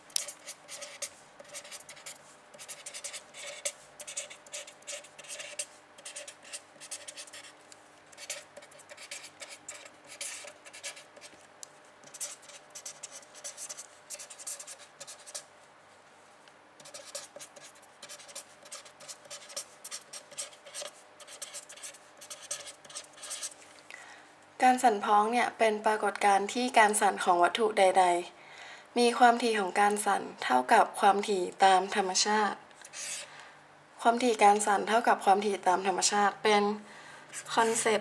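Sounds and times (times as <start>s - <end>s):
pen scratching on paper: 0.2s - 11.4s, 12.0s - 15.4s, 16.8s - 23.6s, 32.9s - 33.2s, 37.3s - 38.0s.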